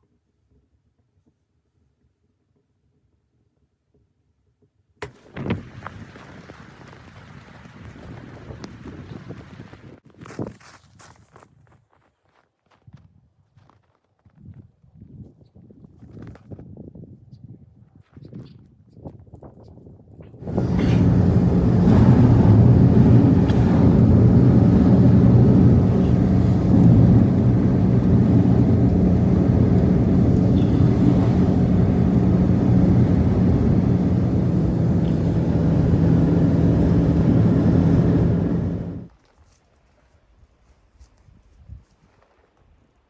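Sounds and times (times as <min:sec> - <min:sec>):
engine running steadily: 0:20.4 - 0:39.1.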